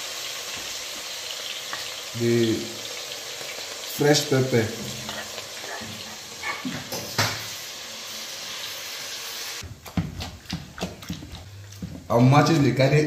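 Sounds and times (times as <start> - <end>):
hot oil sizzling: 0.0 - 10.1.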